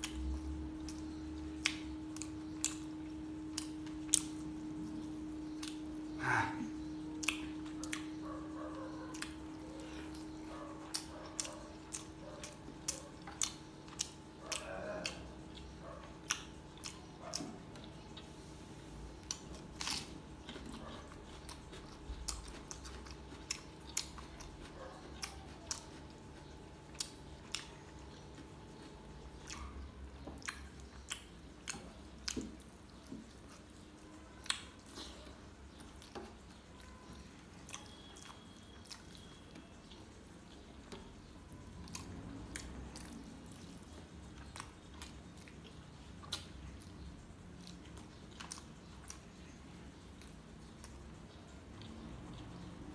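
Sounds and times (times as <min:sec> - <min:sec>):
chewing and lip-smacking: 0:00.0 - 0:52.9
faint steady hum: 0:00.0 - 0:52.9
wet mouth clicks: 0:05.5 - 0:08.1.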